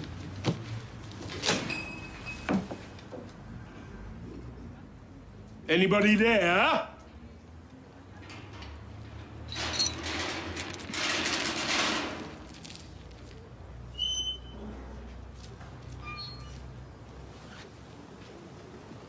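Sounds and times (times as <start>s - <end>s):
rattling clatter: 9.4s - 13.2s
short high squeak: 16.0s - 16.6s.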